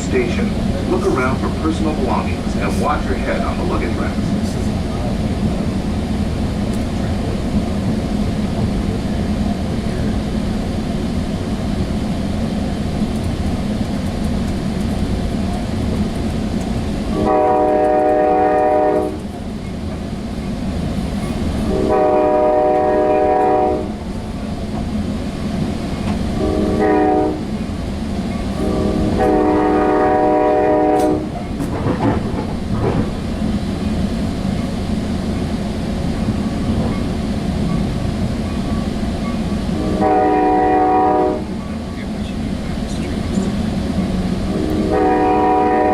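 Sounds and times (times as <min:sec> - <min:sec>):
train rumbling along rails: 0:00.0 - 0:45.9
train horn blasts: 0:17.1 - 0:19.2, 0:21.7 - 0:24.0, 0:26.4 - 0:27.6, 0:28.6 - 0:31.4, 0:39.8 - 0:41.6, 0:44.5 - 0:45.9.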